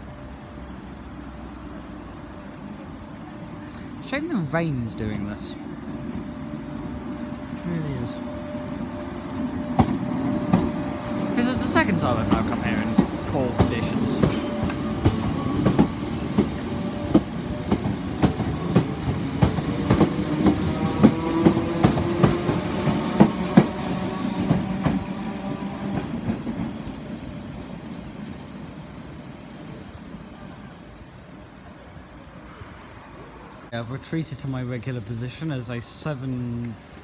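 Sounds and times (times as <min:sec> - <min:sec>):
train motor hum: 0:05.6 - 0:27.9
train wheels clacking over rail joints: 0:09.7 - 0:26.7.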